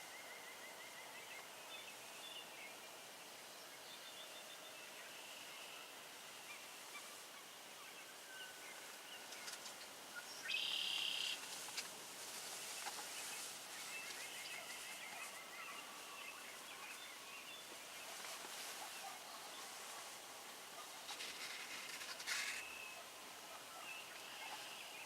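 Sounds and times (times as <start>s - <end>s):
outdoor hiss: 0.0s - 25.0s
birds chirping: 3.7s - 25.0s
buzzy high bird call: 10.5s - 11.4s.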